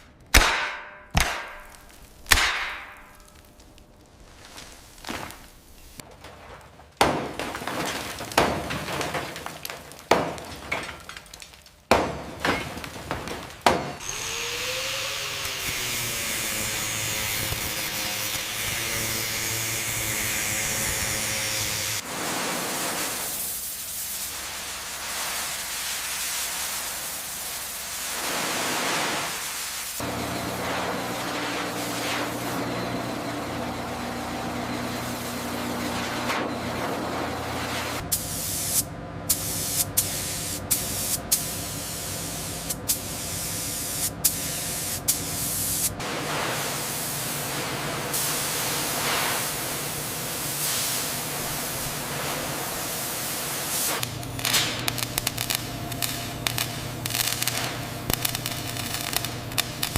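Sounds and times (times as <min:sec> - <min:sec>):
sharp knocks: 0:00.3 - 0:03.2
machine hum with low drone: 0:30.0 - 0:48.2, 0:54.0 - 0:59.9.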